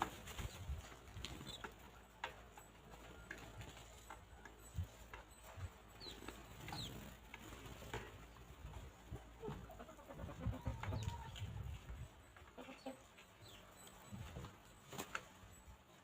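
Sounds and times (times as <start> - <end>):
chickens pecking ground: 0.0 - 16.0.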